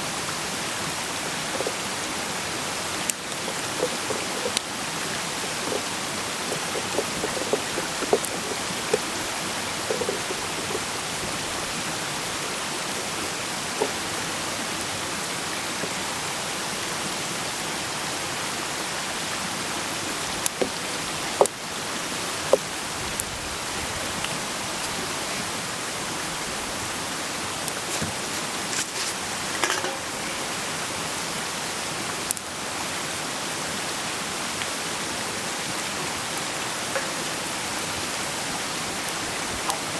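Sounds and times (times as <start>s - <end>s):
fire popping and crackling: 1.0s - 14.4s, 20.2s - 25.3s.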